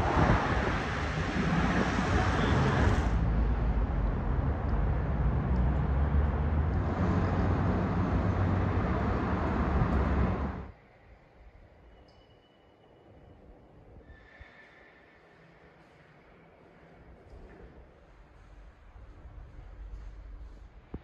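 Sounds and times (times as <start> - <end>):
car engine and exhaust: 0.0 - 10.7
road noise: 0.0 - 10.8.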